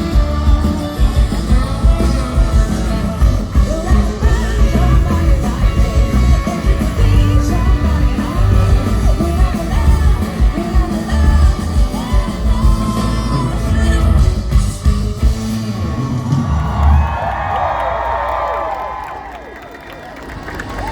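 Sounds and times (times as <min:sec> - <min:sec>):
woman singing: 0:00.0 - 0:14.8
pop-rock band playing: 0:00.0 - 0:17.5.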